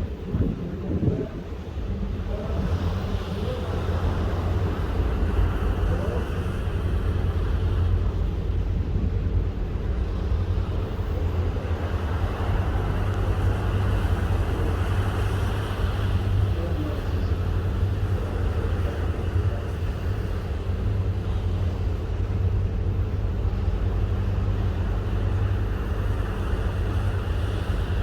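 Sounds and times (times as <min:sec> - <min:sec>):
ship rumble at sea: 0:00.0 - 0:28.0.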